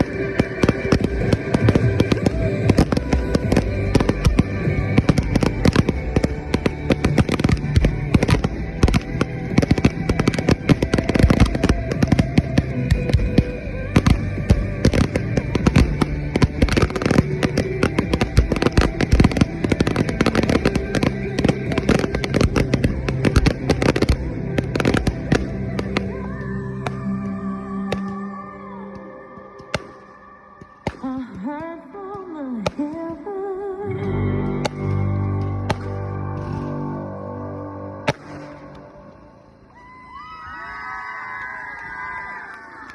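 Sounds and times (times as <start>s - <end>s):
firework bangs and cracks: 0.0s - 27.2s, 38.1s - 38.8s
music playing: 0.0s - 40.4s.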